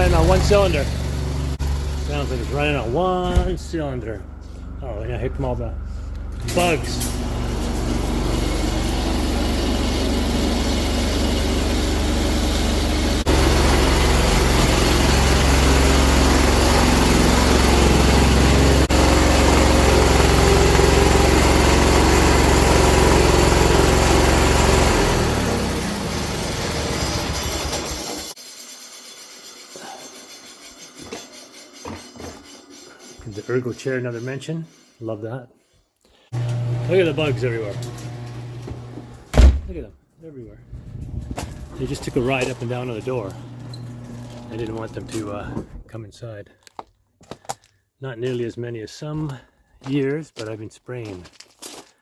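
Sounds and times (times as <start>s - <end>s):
misfiring tractor engine: 0.0s - 28.4s.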